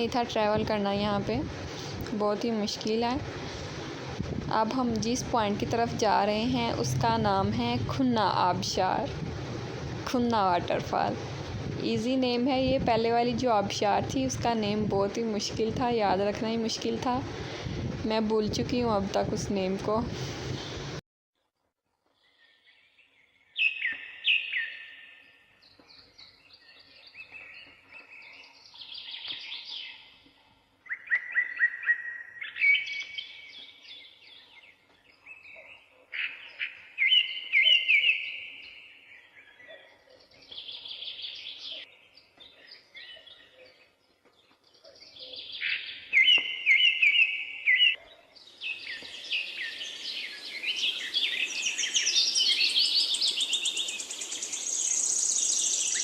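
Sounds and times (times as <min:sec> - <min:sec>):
steady rushing noise: 0:00.0 - 0:21.0
songbird singing trills: 0:30.8 - 0:56.0.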